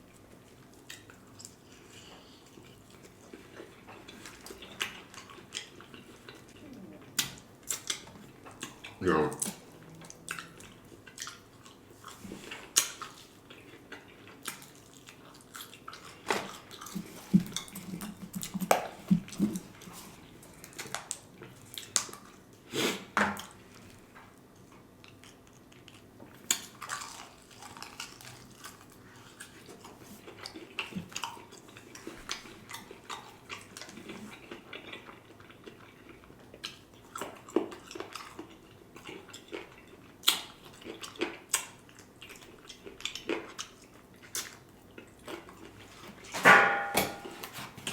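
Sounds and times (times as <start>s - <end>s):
chewing and biting food: 0.0s - 22.7s, 23.4s - 46.4s.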